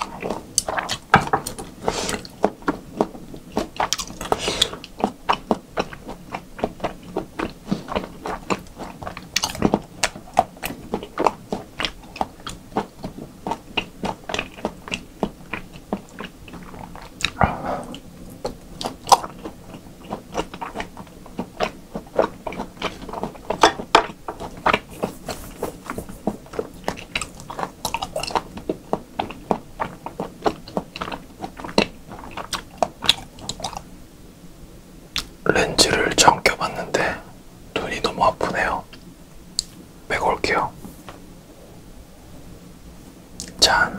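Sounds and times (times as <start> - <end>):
chewing with wet smacks: 0.0 - 33.9, 35.1 - 37.2.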